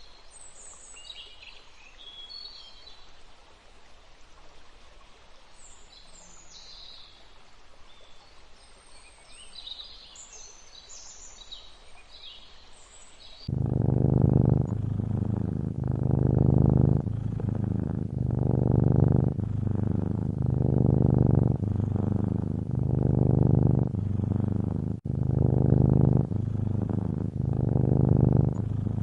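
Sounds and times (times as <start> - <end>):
cat purring close up: 13.4 - 29.0.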